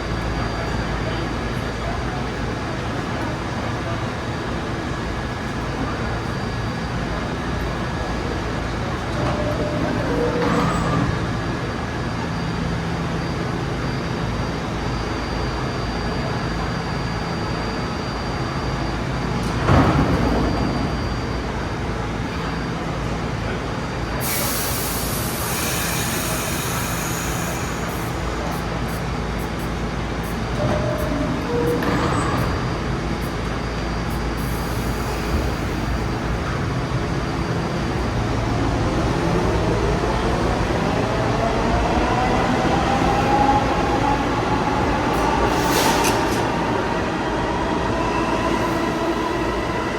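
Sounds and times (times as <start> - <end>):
subway train rumble: 0.0 - 49.9
air brake hiss: 24.2 - 29.0, 45.4 - 46.5.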